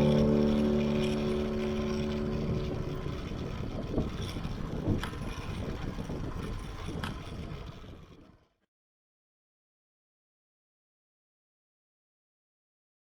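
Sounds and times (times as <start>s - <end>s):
held guitar note: 0.0s - 3.9s.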